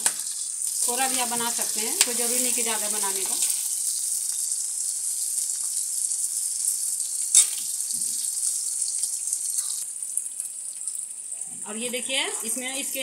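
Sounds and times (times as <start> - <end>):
chillies sizzling in hot oil: 0.0 - 13.0.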